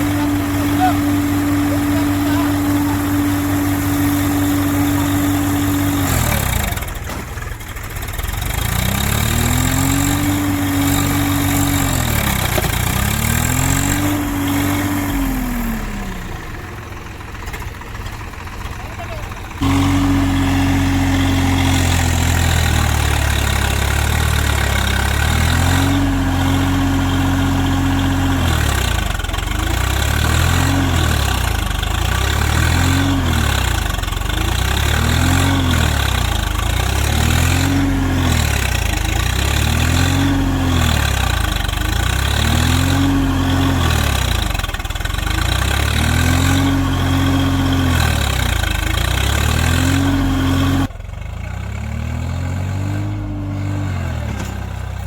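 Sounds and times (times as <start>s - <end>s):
tractor diesel engine labouring: 0.0s - 55.0s.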